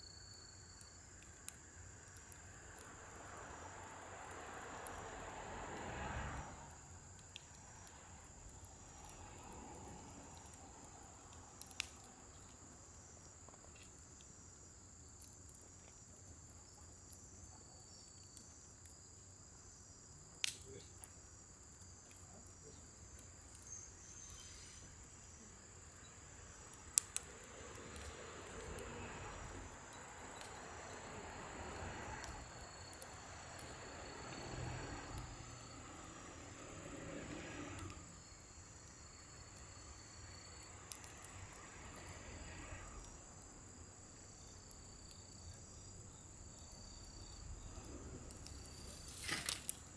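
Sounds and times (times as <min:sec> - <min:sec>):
fire crackling pops: 0:00.2 - 0:49.9
low rush of flame: 0:00.2 - 0:49.9.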